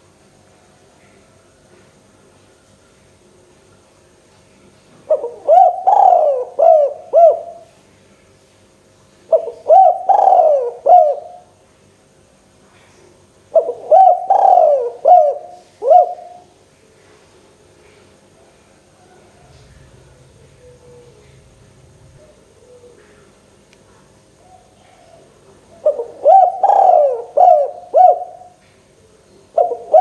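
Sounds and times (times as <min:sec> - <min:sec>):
dove cooing: 0:05.1 - 0:07.7, 0:09.3 - 0:11.5, 0:13.5 - 0:16.6, 0:18.9 - 0:23.5, 0:24.3 - 0:30.0.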